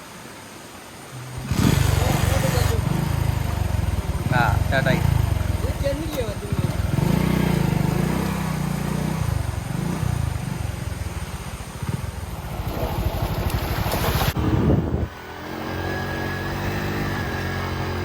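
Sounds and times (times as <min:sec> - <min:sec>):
motorcycle engine revving: 0:01.4 - 0:18.0.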